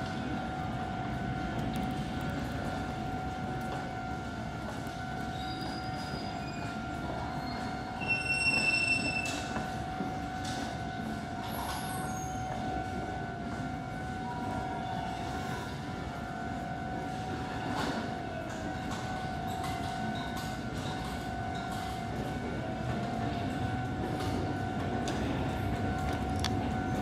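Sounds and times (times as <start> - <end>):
train wheels squealing on rails: 4.6 - 16.2.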